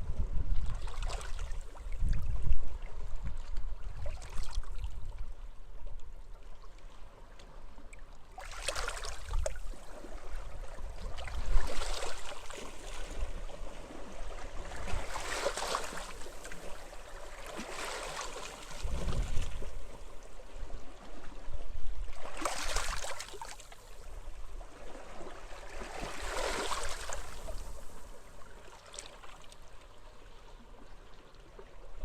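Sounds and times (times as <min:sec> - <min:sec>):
low rumble of wind: 0:00.0 - 0:08.4, 0:09.0 - 0:17.6, 0:18.3 - 0:32.0
waves washing onto beach: 0:25.9 - 0:28.2.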